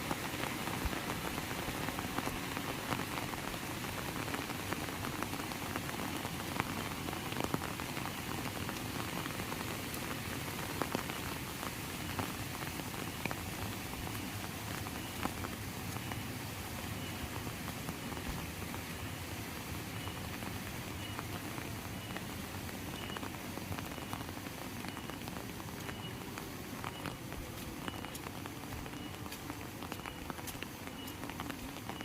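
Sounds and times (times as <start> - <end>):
heavy rain falling: 0.0 - 32.0
raindrops ticking close by: 0.0 - 32.0.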